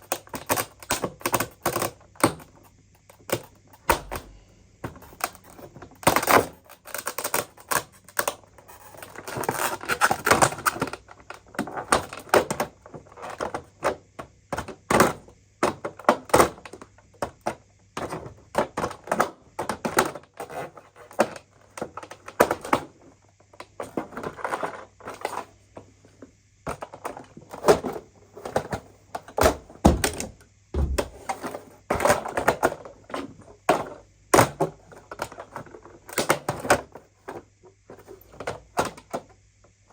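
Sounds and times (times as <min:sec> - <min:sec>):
hard parts clicking and clattering: 0:29.4 - 0:31.6
heavier thuds: 0:29.8 - 0:31.3.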